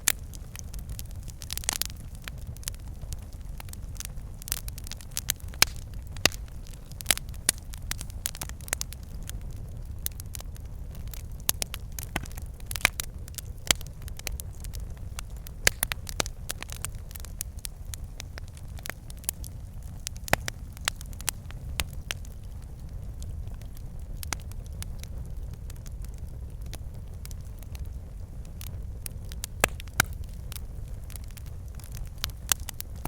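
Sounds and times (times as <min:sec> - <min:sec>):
fire crackling and popping: 0:00.0 - 0:33.0
low rumble of flames: 0:00.0 - 0:33.0.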